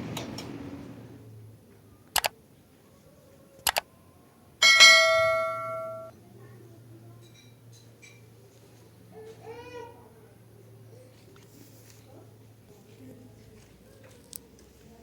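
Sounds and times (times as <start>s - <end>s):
sharp clicks: 2.1s - 2.3s, 3.6s - 3.8s
bright bell-like ding: 4.6s - 6.1s.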